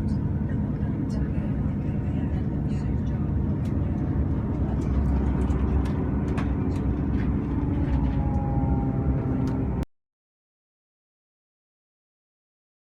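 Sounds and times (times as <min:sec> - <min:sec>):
train engine rumble: 0:00.0 - 0:09.9.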